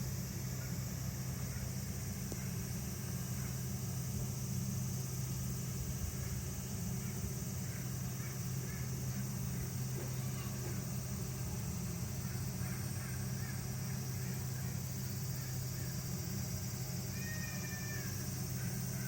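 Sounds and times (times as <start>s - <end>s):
high hiss: 0.0s - 19.0s
steady low hum: 0.0s - 19.0s
faint distant voices: 7.0s - 19.0s
drawn-out falling call: 16.9s - 19.0s.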